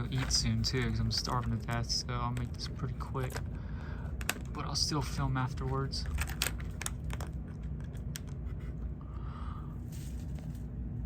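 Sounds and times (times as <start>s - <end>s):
steady low hum: 0.0s - 11.0s
clicks and scrapes of small objects: 3.2s - 4.7s, 5.6s - 8.7s.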